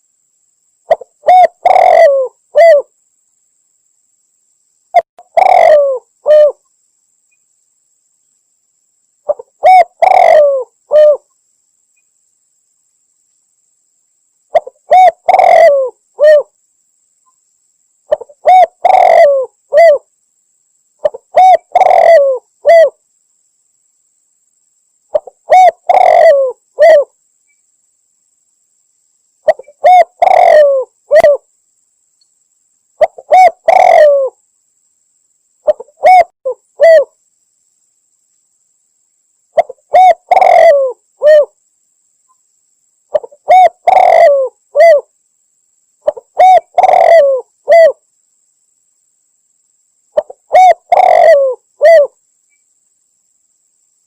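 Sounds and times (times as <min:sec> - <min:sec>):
dove cooing: 0:00.9 - 0:02.9, 0:05.2 - 0:06.6, 0:09.3 - 0:11.3, 0:14.5 - 0:16.5, 0:18.1 - 0:20.1, 0:21.0 - 0:23.0, 0:25.1 - 0:27.1, 0:29.4 - 0:31.4, 0:33.0 - 0:34.4, 0:35.6 - 0:37.1, 0:39.6 - 0:41.6, 0:43.1 - 0:45.1, 0:46.0 - 0:48.0, 0:50.2 - 0:52.2.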